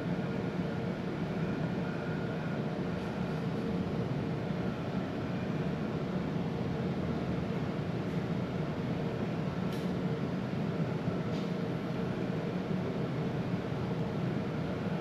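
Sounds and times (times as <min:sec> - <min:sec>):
steady machine hum: 0:00.0 - 0:09.6.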